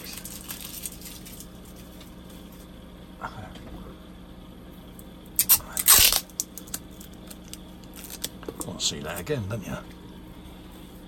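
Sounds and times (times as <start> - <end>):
tape ripping off plastic: 5.4 - 8.4.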